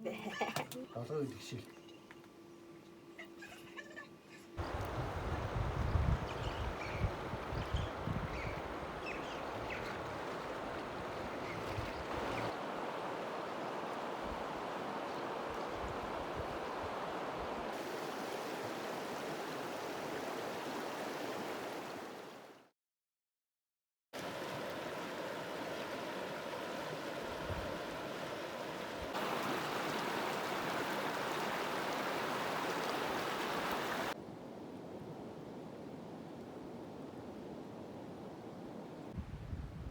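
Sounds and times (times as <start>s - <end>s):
river water rushing: 4.6s - 5.6s, 8.6s - 22.4s, 24.2s - 34.2s
wind buffeting microphone: 4.6s - 12.5s, 39.2s - 39.9s.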